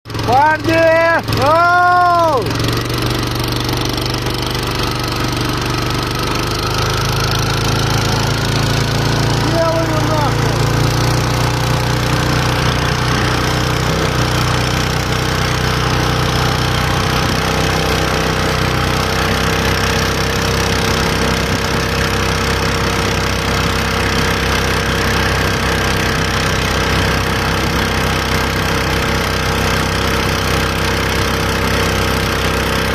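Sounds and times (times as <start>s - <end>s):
boat motor running: 0.1s - 32.9s.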